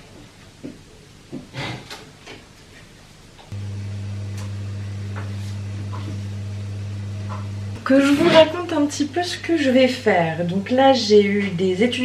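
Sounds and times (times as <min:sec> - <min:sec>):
electrical appliance humming: 0:03.5 - 0:10.8.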